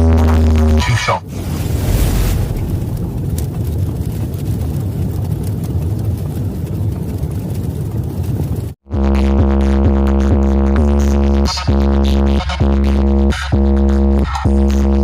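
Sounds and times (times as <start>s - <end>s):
electronic music with deep bass: 8.9s - 15.0s
loud low bass rumble from speakers: 8.9s - 15.0s.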